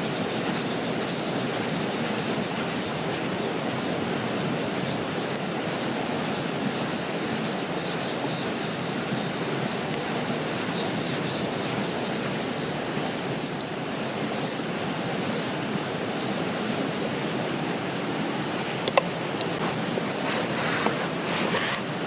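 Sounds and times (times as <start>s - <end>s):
flowing river water: 0.0s - 22.0s
light scraping strokes: 19.6s - 21.9s.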